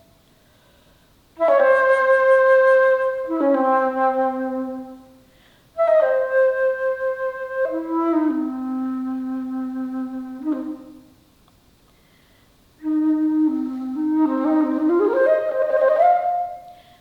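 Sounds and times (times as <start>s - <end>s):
alto flute playing: 1.4s - 5.2s, 5.8s - 11.2s, 12.8s - 17.0s.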